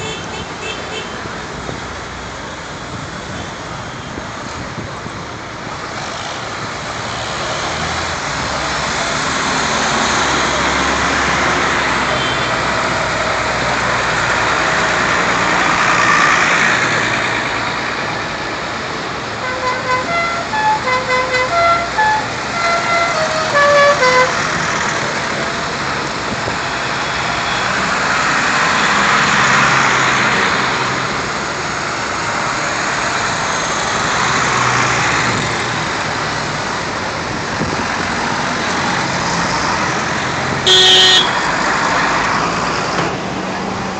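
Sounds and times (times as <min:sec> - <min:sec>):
tractor engines passing: 0:01.2 - 0:43.9
musical horn tune: 0:19.4 - 0:24.4, 0:40.7 - 0:41.4.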